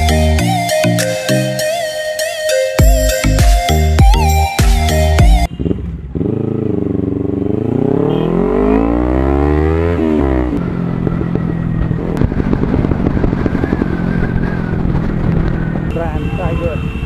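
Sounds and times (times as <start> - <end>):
motorcycle engine accelerating: 5.2 - 16.0.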